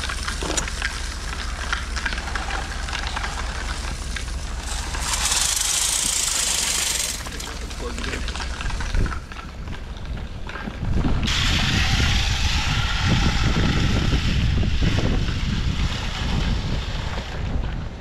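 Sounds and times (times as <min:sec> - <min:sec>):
steady hiss: 0:00.0 - 0:08.8
wind buffeting microphone: 0:01.5 - 0:18.0.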